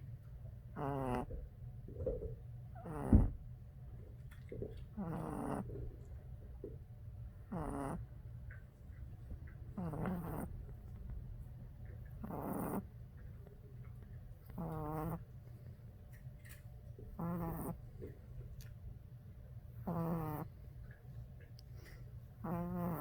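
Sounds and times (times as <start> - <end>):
puppy snoring: 0.6 - 3.5, 4.1 - 6.8, 7.4 - 15.5, 17.0 - 18.8, 19.7 - 21.0, 22.3 - 23.0.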